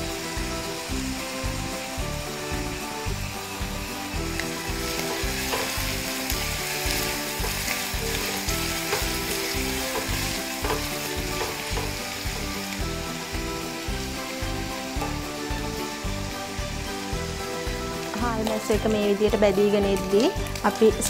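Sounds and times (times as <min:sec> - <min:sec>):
background music with a beat: 0:00.0 - 0:21.0
fish sizzling in hot oil: 0:00.0 - 0:21.0
spatula scraping a pan: 0:04.6 - 0:12.6.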